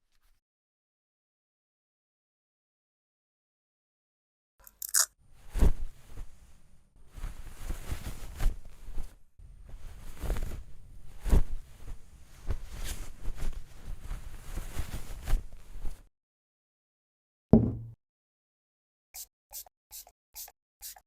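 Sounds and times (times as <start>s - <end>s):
plastic pieces clicking: 4.6s - 5.1s.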